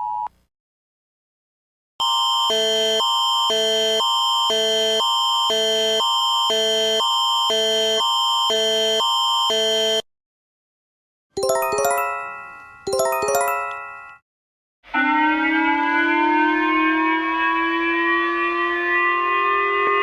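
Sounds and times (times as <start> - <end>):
pulsing electronic alarm beeps: 2.0 - 10.0
ringing chime notes: 11.4 - 14.2
siren-like chord rising in pitch: 14.9 - 20.0.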